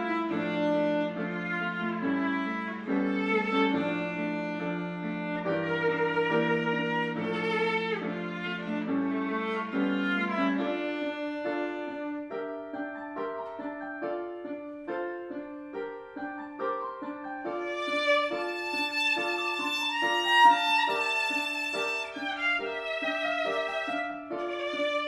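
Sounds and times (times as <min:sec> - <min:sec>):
higher bright violin line: 0:00.0 - 0:14.6, 0:16.5 - 0:25.0
violin melody: 0:00.0 - 0:25.0.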